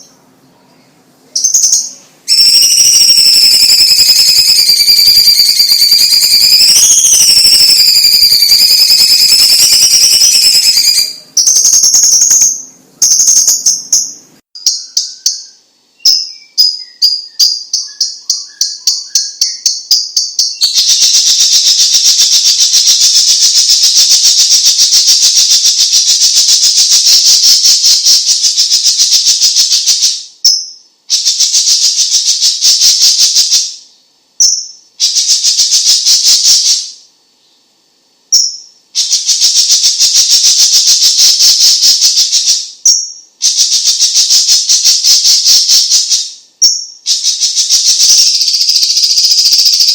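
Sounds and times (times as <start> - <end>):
bird singing fast trills: 0.0 - 37.7, 38.3 - 49.9.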